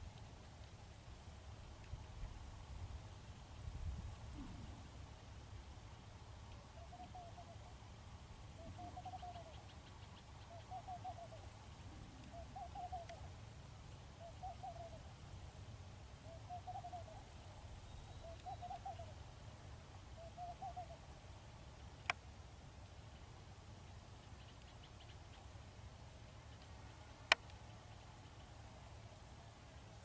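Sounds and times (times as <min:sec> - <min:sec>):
bird calling faintly: 0:03.4 - 0:05.0, 0:06.4 - 0:13.4, 0:14.0 - 0:15.3, 0:16.2 - 0:19.3, 0:20.0 - 0:21.2, 0:22.9 - 0:29.2.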